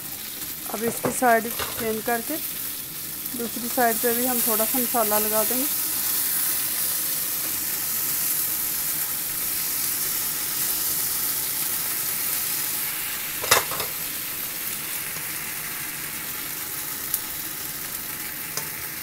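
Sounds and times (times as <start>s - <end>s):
chicken sizzling in a pan: 0.0s - 19.0s
utensil clacking against pan: 13.4s - 14.0s.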